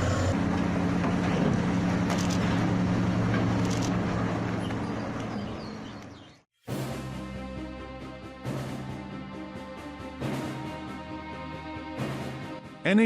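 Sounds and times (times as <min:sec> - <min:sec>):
diesel truck engine running: 0:00.0 - 0:06.2.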